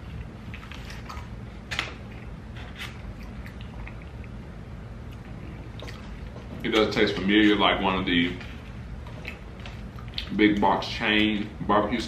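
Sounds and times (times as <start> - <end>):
wet mouth clicks and smacks: 2.9 - 4.4, 5.0 - 6.4, 9.2 - 10.3.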